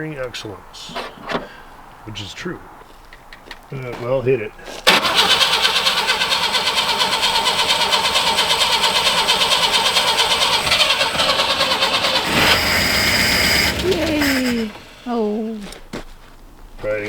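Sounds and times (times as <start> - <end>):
starter motor cranking engine: 4.9 - 15.9.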